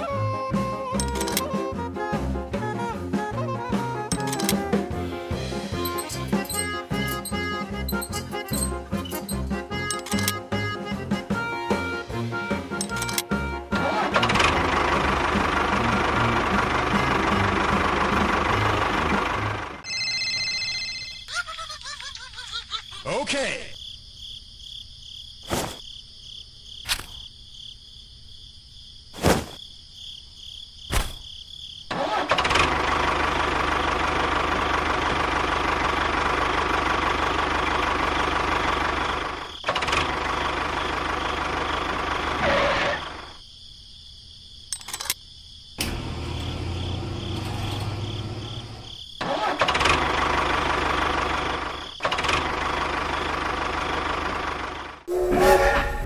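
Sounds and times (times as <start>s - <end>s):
tractor engine running: 0.5s - 3.0s, 3.7s - 19.9s, 31.9s - 43.3s, 45.8s - 55.1s
sharp clicks: 5.9s - 10.5s.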